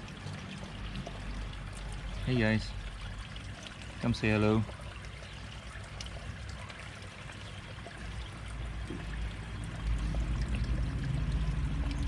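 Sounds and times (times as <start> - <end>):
water pouring into pond: 0.0 - 12.0.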